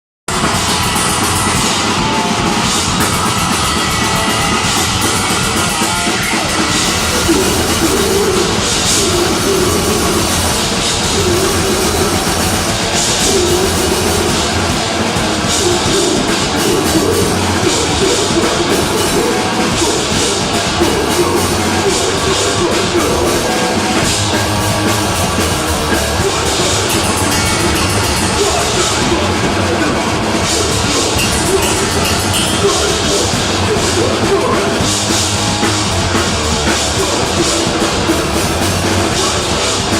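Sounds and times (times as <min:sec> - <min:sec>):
distorted guitar and bass: 0:00.3 - 0:39.9
fast pounding drums: 0:00.3 - 0:39.9
metal band playing live: 0:00.3 - 0:39.9
crashing cymbals: 0:24.4 - 0:34.1
wavering tone: 0:26.2 - 0:33.4.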